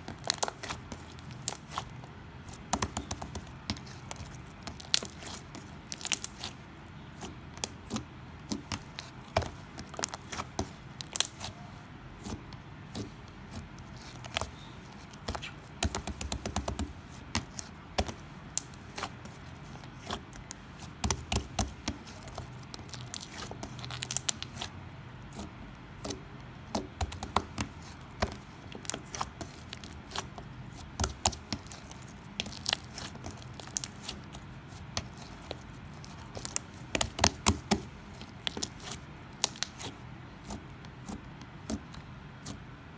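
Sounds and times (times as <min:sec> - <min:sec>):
slime squeezed and stretched: 0:03.8 - 0:15.8, 0:27.1 - 0:42.6.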